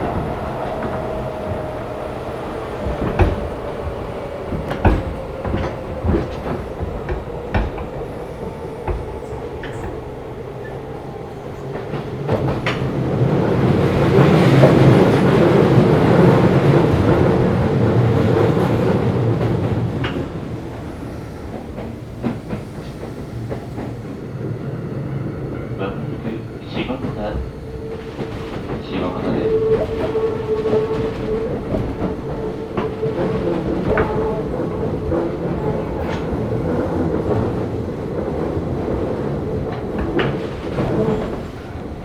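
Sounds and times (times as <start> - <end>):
wheels clicking over rail joints: 0.0 - 10.7
electric train running noise: 0.0 - 42.0.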